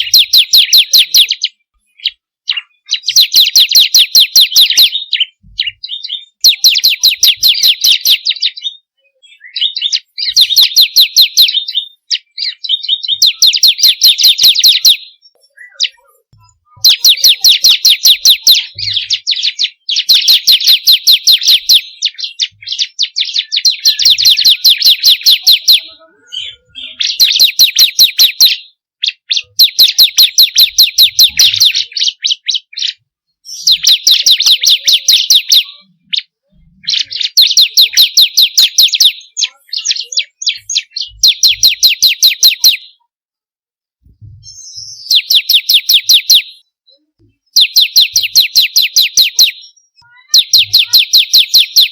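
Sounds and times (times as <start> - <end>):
bird song of sharp chips: 0.0 - 43.1, 44.4 - 51.9.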